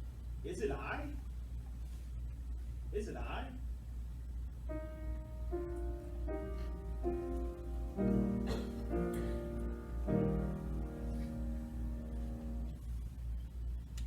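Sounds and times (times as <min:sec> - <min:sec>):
steady low hum: 0:00.0 - 0:14.0
slow keyboard music: 0:04.7 - 0:13.3.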